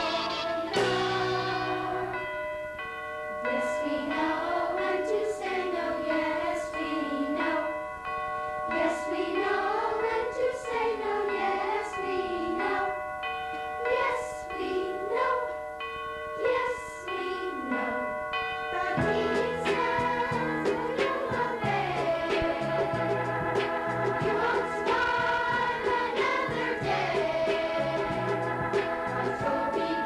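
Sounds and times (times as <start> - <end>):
youth choir singing: 0.0 - 2.2, 3.5 - 7.8, 8.7 - 13.0, 13.8 - 15.6, 16.4 - 18.0, 18.7 - 30.0
held accompaniment chords: 0.0 - 7.6, 16.4 - 30.0.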